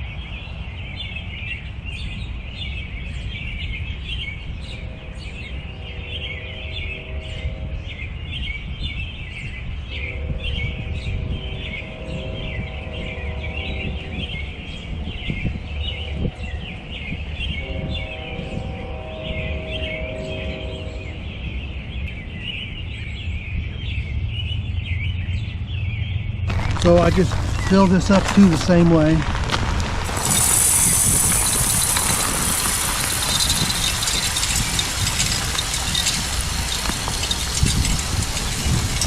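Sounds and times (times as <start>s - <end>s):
small birds chirping: 22.0s - 39.0s
low rumble: 25.5s - 39.0s.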